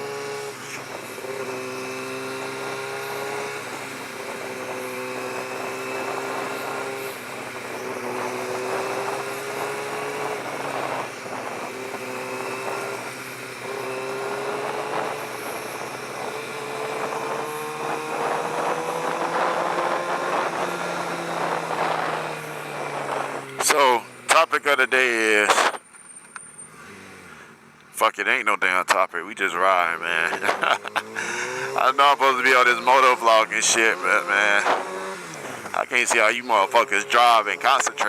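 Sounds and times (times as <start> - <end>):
motorcycle engine at high revs: 0.0 - 25.8, 26.6 - 27.6, 29.8 - 38.0
wind rush: 14.2 - 23.6.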